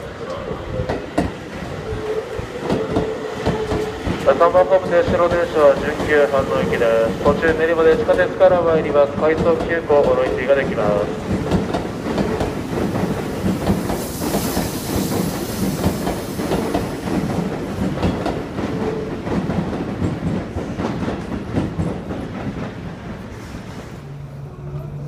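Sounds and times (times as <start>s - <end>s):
train rumbling past: 0.0s - 25.0s
hiss: 13.0s - 17.3s.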